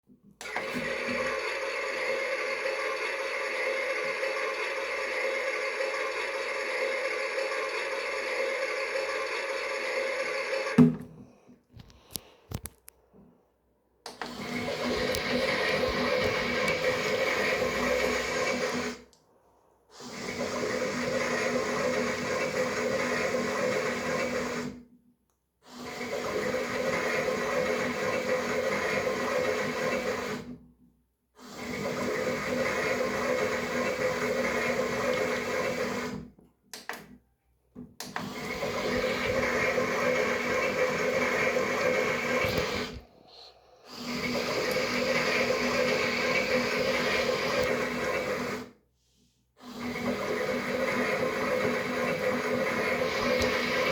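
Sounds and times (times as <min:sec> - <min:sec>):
small electric motor whirring: 0:49.8 - 0:53.9.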